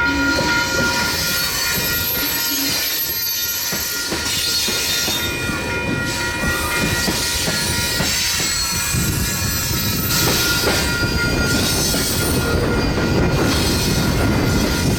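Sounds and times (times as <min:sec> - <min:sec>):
train wheel squeal: 0:00.0 - 0:14.9.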